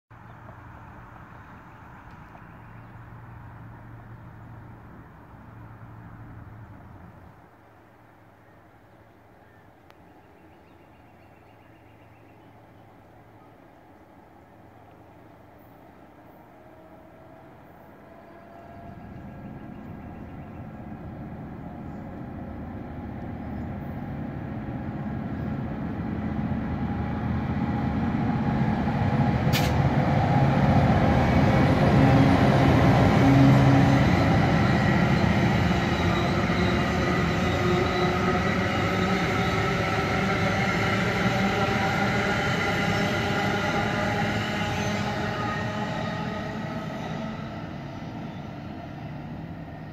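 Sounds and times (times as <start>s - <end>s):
locomotive engine: 12.3s - 49.9s
train wheels rumbling on rails: 14.8s - 49.9s.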